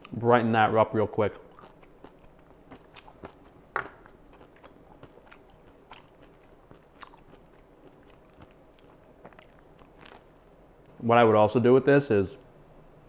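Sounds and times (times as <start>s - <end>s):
faint chewing: 1.2s - 10.6s
crust crunching: 1.6s - 10.3s.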